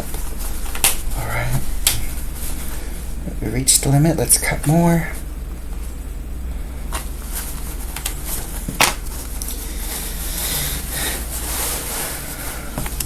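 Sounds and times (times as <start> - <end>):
fabric rustling: 0.0 - 3.2, 6.9 - 13.0
steady low hum: 0.0 - 13.0.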